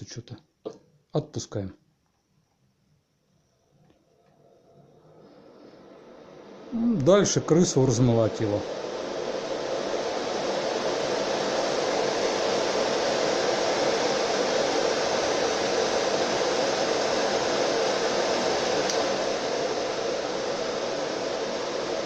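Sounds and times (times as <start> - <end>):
blower fans rushing air: 4.4 - 22.0.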